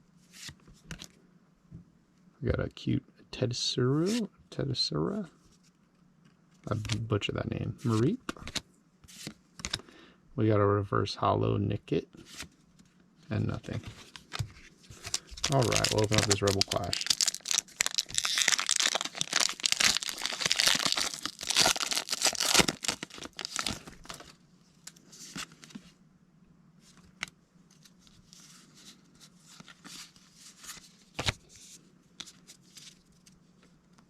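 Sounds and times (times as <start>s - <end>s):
faint handling sounds: 5.1s - 9.9s, 12.2s - 21.2s, 26.8s - 34.0s
foil wrapper tearing and crinkling: 14.2s - 24.3s.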